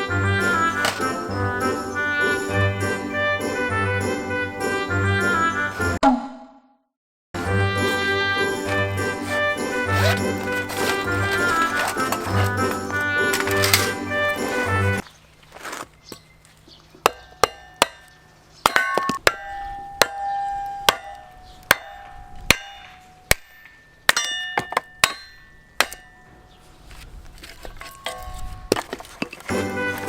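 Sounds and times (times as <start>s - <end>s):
metal camp gear clinking: 0.6s - 3.0s, 7.9s - 14.8s, 27.4s - 30.0s
quiet shuffling: 15.0s - 16.7s.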